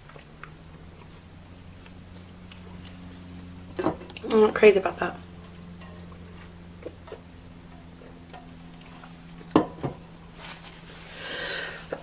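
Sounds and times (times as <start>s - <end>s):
quiet chewing: 0.0s - 3.4s
short breath: 11.1s - 11.9s.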